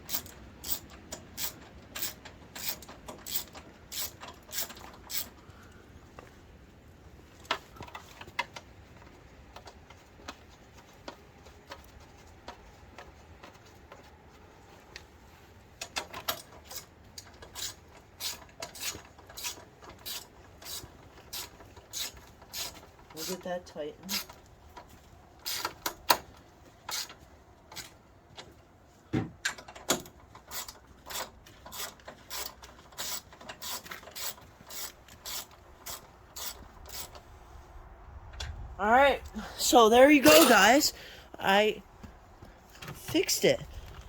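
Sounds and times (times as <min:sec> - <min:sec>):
ratchet wrench clicking: 0:00.1 - 0:05.4.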